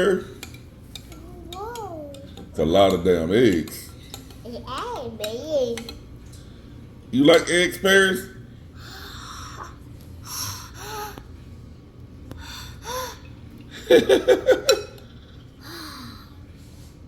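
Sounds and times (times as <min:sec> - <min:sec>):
child breathing hard: 0:08.8 - 0:11.3, 0:12.3 - 0:13.3, 0:15.6 - 0:16.4
child giggling: 0:13.8 - 0:15.0.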